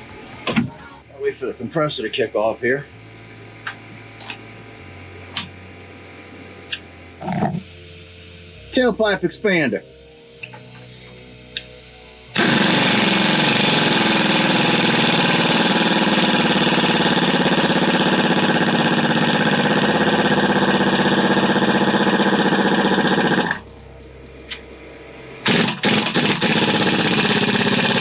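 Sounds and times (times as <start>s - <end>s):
air impact wrench running: 6.6s - 28.0s.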